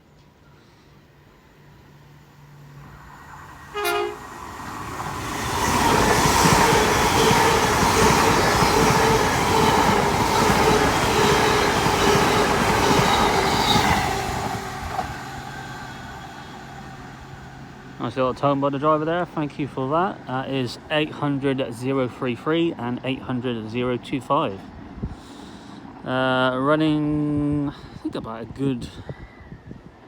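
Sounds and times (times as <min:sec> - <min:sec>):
train passing at speed: 0:00.3 - 0:27.4
train horn blast: 0:03.7 - 0:04.4.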